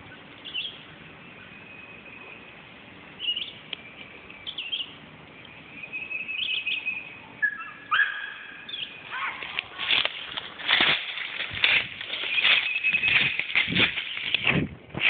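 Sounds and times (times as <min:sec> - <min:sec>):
birds chirping: 0:00.0 - 0:14.7
sharp noises: 0:08.9 - 0:15.0.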